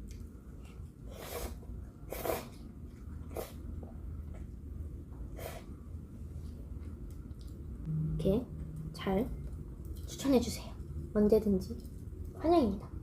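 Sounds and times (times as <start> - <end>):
low steady hum: 2.6 - 13.0.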